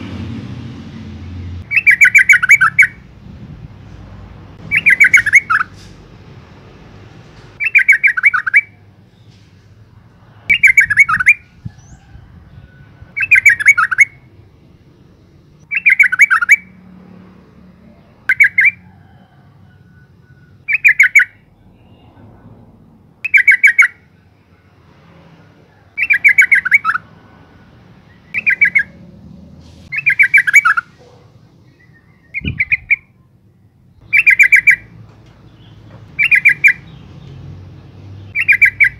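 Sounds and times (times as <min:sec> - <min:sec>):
bird rapid chattering call: 0:01.7 - 0:03.0, 0:04.6 - 0:05.9, 0:07.6 - 0:08.7, 0:13.2 - 0:14.2, 0:15.7 - 0:16.7, 0:20.7 - 0:21.3, 0:23.3 - 0:24.0, 0:26.0 - 0:27.0, 0:28.3 - 0:29.0, 0:29.9 - 0:31.0, 0:31.8 - 0:33.1, 0:34.0 - 0:34.9, 0:35.5 - 0:37.0, 0:38.2 - 0:38.9.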